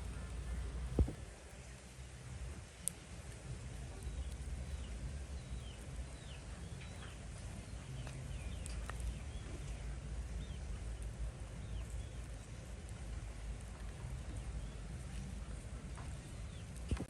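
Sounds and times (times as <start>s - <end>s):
low rumble: 0.0s - 1.6s
small birds chirping: 0.0s - 17.0s.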